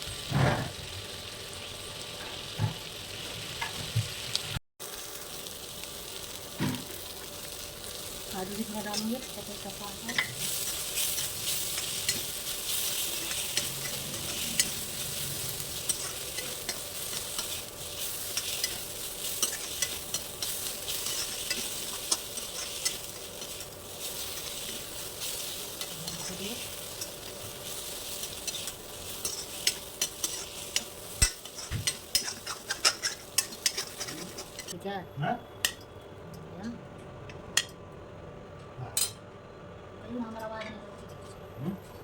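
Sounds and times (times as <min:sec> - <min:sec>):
food sizzling in hot oil: 0:00.0 - 0:34.8
spatula clicking and scraping pan: 0:08.8 - 0:34.8.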